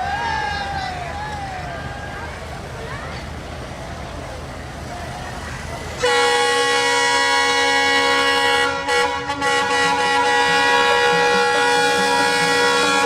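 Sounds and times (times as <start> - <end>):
train air horn blast: 6.0 - 13.0.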